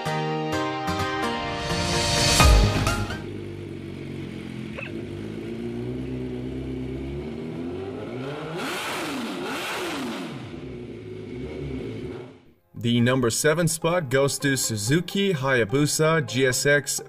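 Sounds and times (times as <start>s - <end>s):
motorcycle engine revving: 2.4s - 12.5s.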